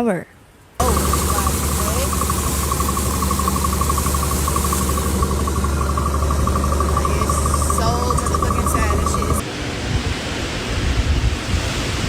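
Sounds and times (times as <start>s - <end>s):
rapid high insect-like trill: 0.8s - 9.4s
steady low hum: 0.8s - 9.4s.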